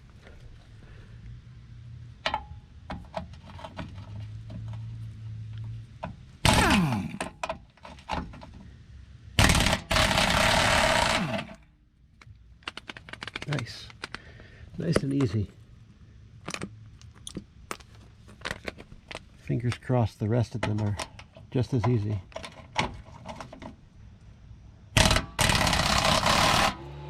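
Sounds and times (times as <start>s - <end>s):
impact wrench bursts: 6.4s - 7.4s, 9.4s - 11.6s, 25.0s - 26.9s.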